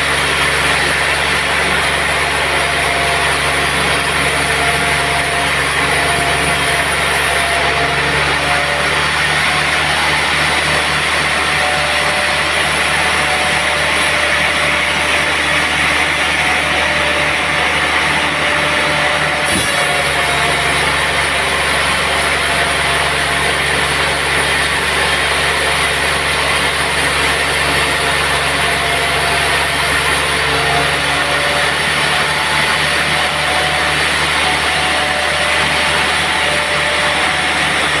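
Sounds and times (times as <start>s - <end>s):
sawmill machinery whirring: 0.0s - 38.0s.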